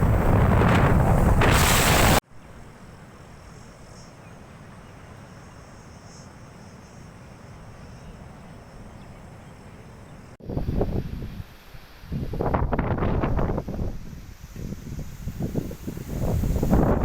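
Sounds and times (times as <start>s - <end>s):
wind buffeting microphone: 0.0s - 2.2s, 10.4s - 11.5s, 12.1s - 17.0s
insect chirring: 5.3s - 8.2s.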